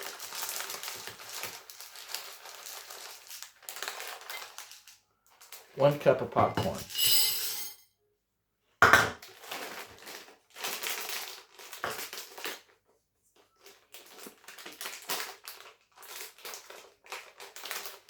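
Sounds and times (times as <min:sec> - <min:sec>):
bag crinkling and rustling: 0:00.0 - 0:06.0, 0:09.4 - 0:12.8, 0:13.4 - 0:18.0.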